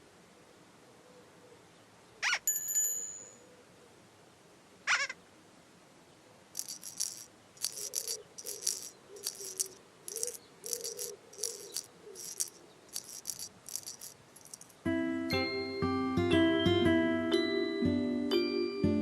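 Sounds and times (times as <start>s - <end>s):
shaker rattle bursts: 6.6s - 14.8s.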